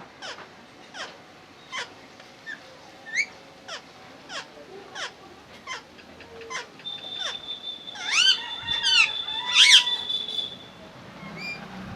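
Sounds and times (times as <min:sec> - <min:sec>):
parrot chirping and squawking: 0:00.2 - 0:01.1, 0:06.5 - 0:10.2.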